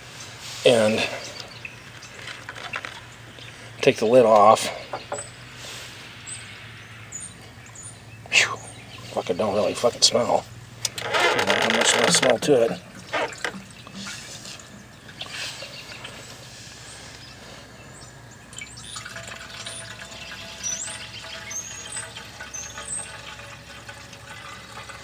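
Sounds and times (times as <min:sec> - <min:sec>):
liquid pouring into a tank: 0:11.0 - 0:16.3, 0:18.5 - 0:25.0
high bird chirps: 0:18.0 - 0:23.2.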